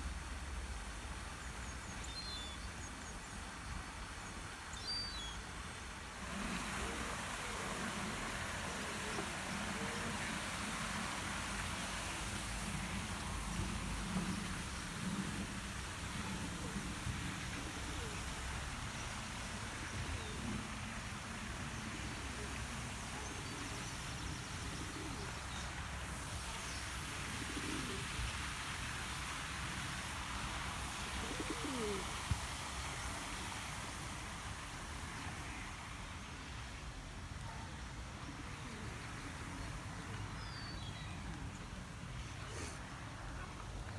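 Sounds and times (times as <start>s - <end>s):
outdoor background hiss: 0.0s - 43.9s
pigeon cooing: 6.5s - 11.0s, 16.1s - 18.6s, 24.5s - 25.6s, 27.3s - 28.1s, 31.2s - 32.2s.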